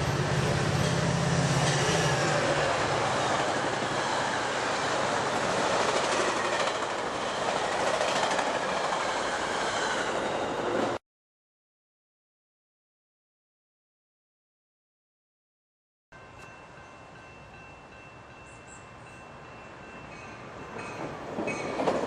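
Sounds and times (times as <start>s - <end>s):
train cars rumbling over rails: 0.0s - 11.0s, 16.8s - 22.0s.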